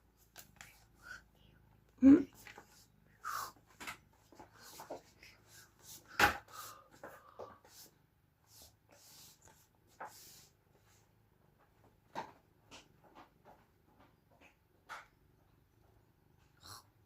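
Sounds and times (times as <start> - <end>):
rustling and handling noises: 0.0 - 14.6
short breathy hisses: 3.2 - 3.6.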